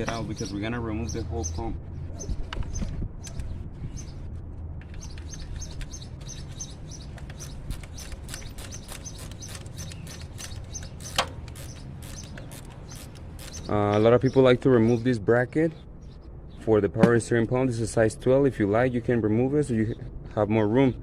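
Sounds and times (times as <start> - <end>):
small birds chirping: 0.0 - 17.4
hand wrench clicks: 7.2 - 13.7.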